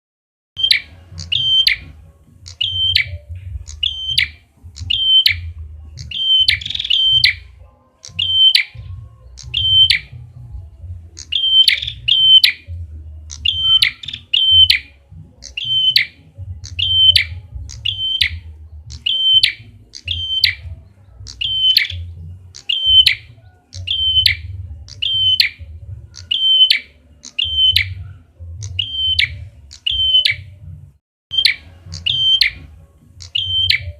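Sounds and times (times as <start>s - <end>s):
steady low rumble: 0.9s - 7.8s, 8.8s - 22.6s, 23.3s - 26.3s
bird double chirp: 2.5s - 10.2s, 13.3s - 25.6s, 33.2s - 33.9s.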